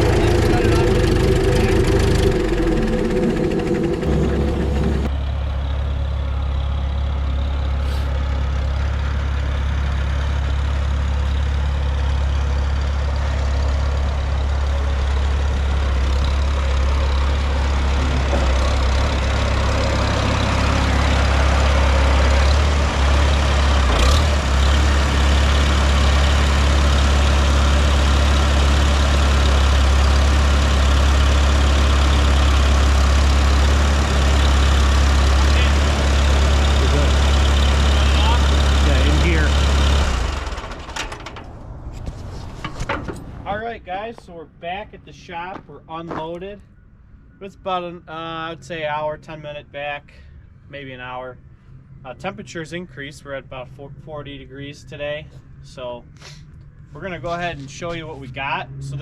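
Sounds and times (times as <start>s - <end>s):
engine droning: 0.0s - 59.0s.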